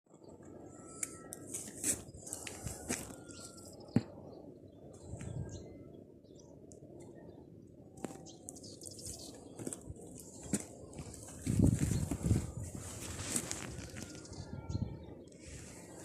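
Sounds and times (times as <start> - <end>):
birds chirping: 0.1 - 16.0.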